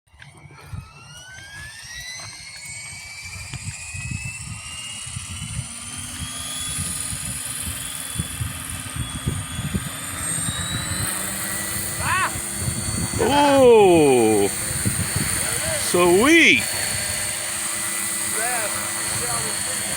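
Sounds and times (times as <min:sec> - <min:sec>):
model helicopter rotor whine: 0:17.3 - 0:19.9.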